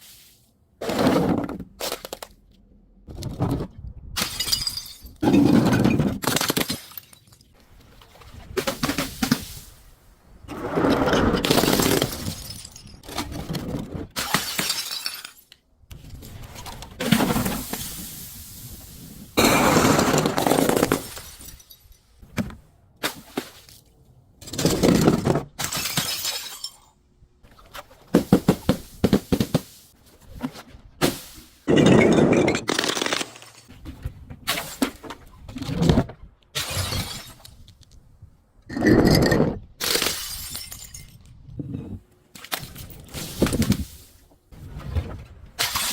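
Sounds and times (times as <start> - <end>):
glass bottles shattering: 4.2 - 7.5, 11.5 - 13.2, 14.2 - 15.6, 19.4 - 22.2, 25.6 - 27.0, 31.7 - 33.7, 36.6 - 37.6, 38.7 - 41.4, 45.6 - 45.9.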